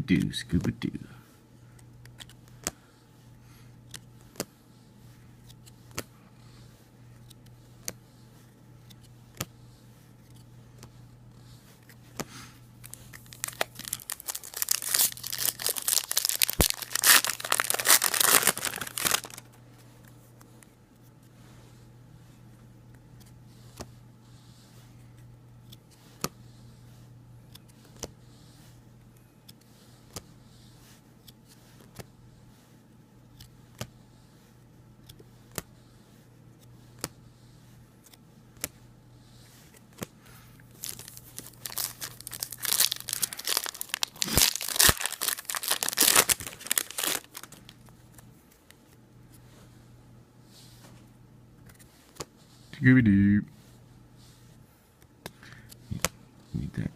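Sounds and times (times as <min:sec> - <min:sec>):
card wrapper torn and crinkled: 0:12.9 - 0:19.5, 0:40.7 - 0:47.8.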